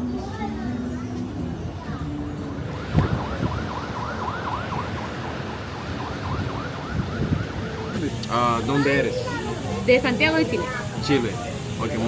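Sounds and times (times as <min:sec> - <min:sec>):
street traffic noise: 0:00.0 - 0:12.0
siren yelping: 0:02.8 - 0:08.4.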